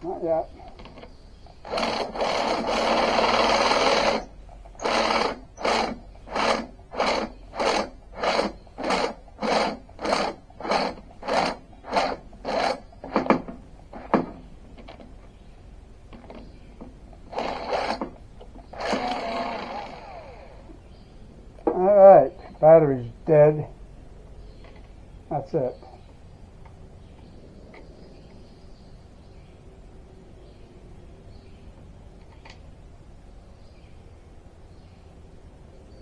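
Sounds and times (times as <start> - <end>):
cordless drill drilling: 0.8 - 14.2, 17.2 - 20.8.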